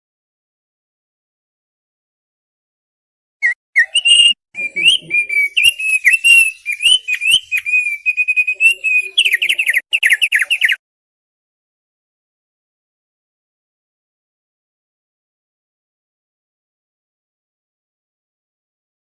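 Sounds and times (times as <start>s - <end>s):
bird singing whistled notes: 3.4s - 10.8s.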